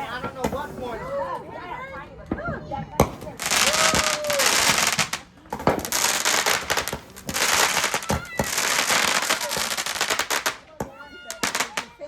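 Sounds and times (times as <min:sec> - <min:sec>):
fireworks bangs: 0:02.9 - 0:12.0
fireworks whistling: 0:03.0 - 0:10.7, 0:11.3 - 0:12.0
fireworks crackling hiss: 0:03.0 - 0:12.0.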